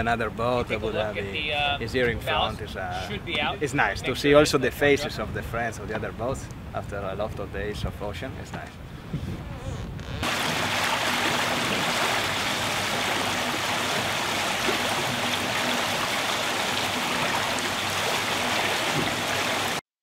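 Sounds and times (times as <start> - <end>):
water rushing past hull: 10.2 - 19.8.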